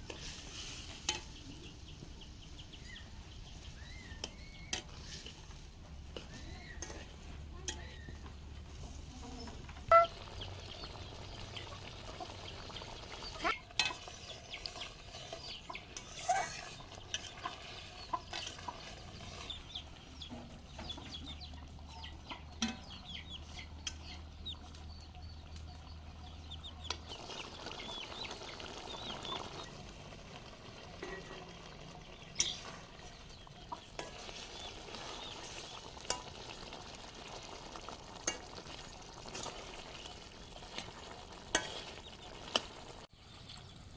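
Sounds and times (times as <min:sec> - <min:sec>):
curry sizzling in a pan: 0:00.0 - 0:20.0, 0:27.0 - 0:43.1
chickens clucking: 0:00.0 - 0:43.7
spoon scraping and clinking pan: 0:15.2 - 0:17.4.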